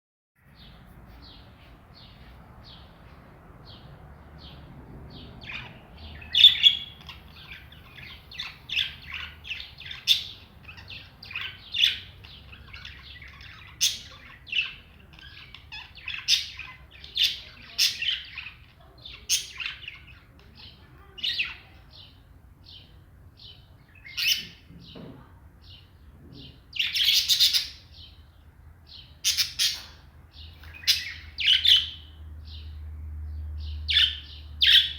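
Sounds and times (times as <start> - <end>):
caged birds chirping: 0.4 - 34.9.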